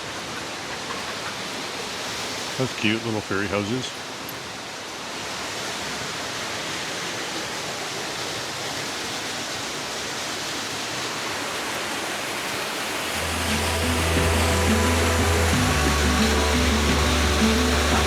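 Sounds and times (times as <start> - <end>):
waterfall rushing: 1.5 - 18.0
music with deep bass: 13.2 - 18.0.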